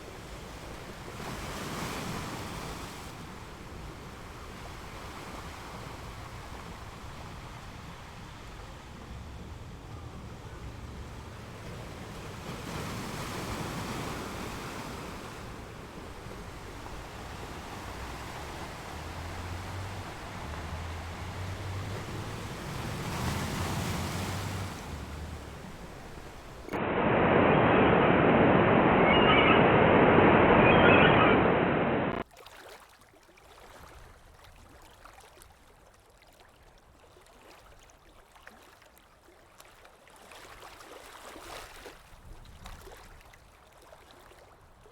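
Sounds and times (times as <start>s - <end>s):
ocean surf washing in: 10.7s - 32.2s
loud dull rush of surf: 24.4s - 32.2s
faint high tones: 26.7s - 32.2s.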